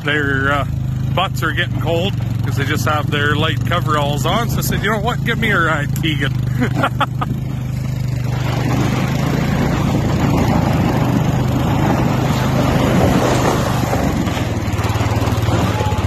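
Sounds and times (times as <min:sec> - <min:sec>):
vehicle engine running: 0:00.0 - 0:16.0
rushing snow and wind: 0:07.4 - 0:16.0.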